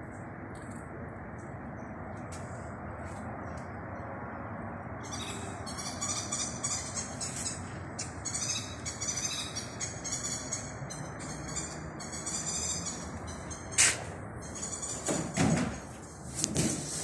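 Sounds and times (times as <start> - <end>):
low outdoor rush: 0.0 - 17.0
birds chirping: 5.0 - 15.4.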